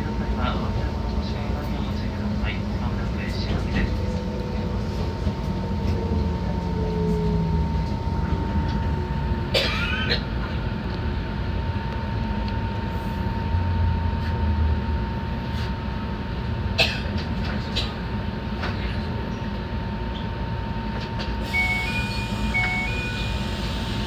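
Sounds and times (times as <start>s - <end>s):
electric train rumbling: 0.0s - 24.0s
short high beeps: 21.4s - 24.0s.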